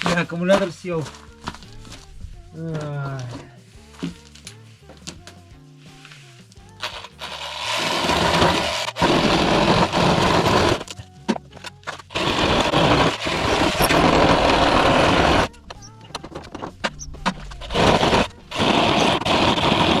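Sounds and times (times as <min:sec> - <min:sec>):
power saw cutting wood: 0:06.8 - 0:10.9, 0:11.9 - 0:20.0.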